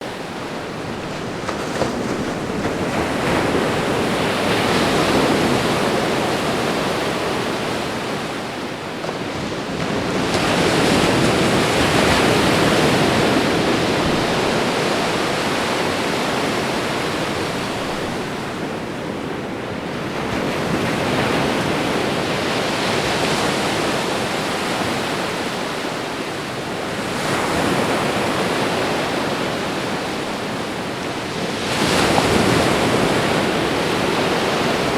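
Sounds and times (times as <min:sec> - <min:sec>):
ocean waves breaking on shore: 0:00.0 - 0:34.9.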